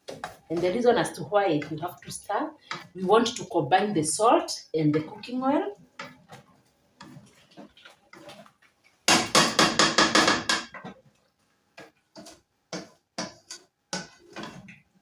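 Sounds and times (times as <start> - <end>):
spoon knocking and scraping pot: 2.6 - 3.0, 6.0 - 11.0, 11.8 - 14.9.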